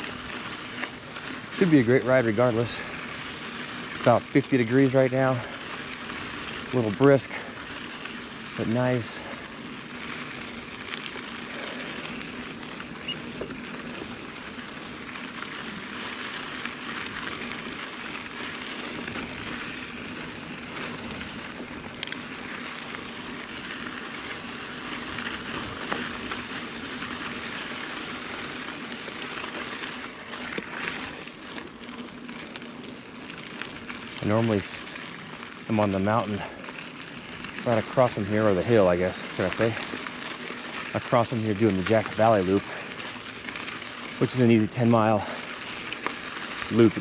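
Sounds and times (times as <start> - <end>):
bike tyres crackling on gravel: 0.0 - 47.0
small clicks: 20.8 - 22.3.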